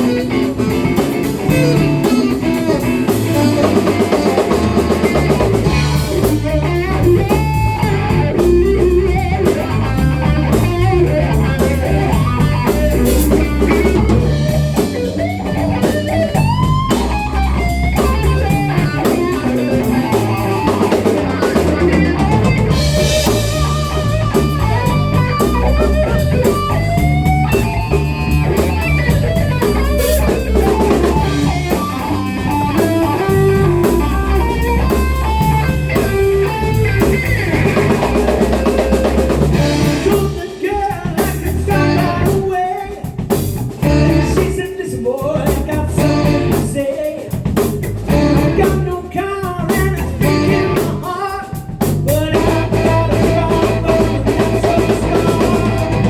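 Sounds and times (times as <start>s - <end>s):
bass: 0.0s - 56.0s
drum kit: 0.0s - 56.0s
electric guitar: 0.0s - 56.0s.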